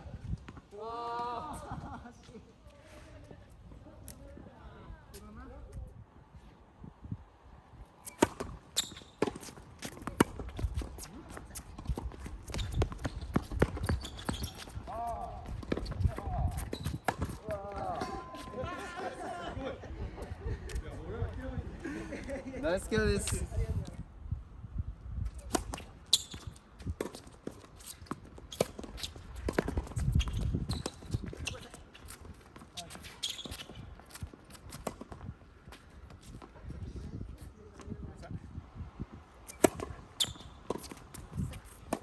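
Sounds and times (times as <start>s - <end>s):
wind rumble on microphone: 0.0s - 8.7s, 9.6s - 27.1s, 27.9s - 32.6s, 33.7s - 42.0s
rackets striking tennis ball: 8.1s - 11.8s, 15.5s - 18.2s, 39.5s - 42.0s
ball bouncing on court: 8.2s - 18.2s.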